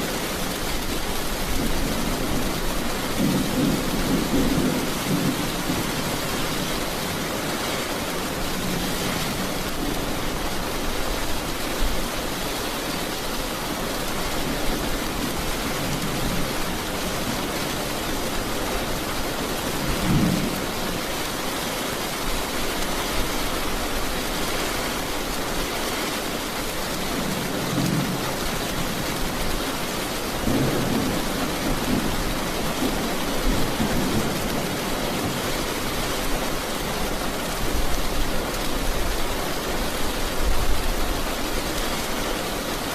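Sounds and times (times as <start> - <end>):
thunder rumbling: 0.0 - 10.4
steady rain: 0.0 - 42.9.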